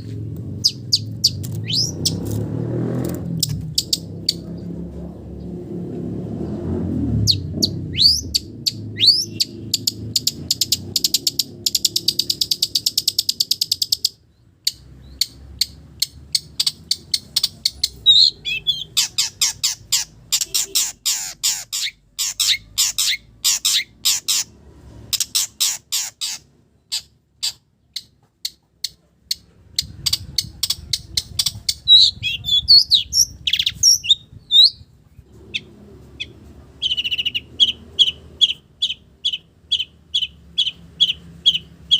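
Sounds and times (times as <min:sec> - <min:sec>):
bird whistled notes: 0:00.6 - 0:02.2
bird singing chattering notes: 0:00.6 - 0:02.3, 0:07.2 - 0:24.5, 0:25.2 - 0:41.9.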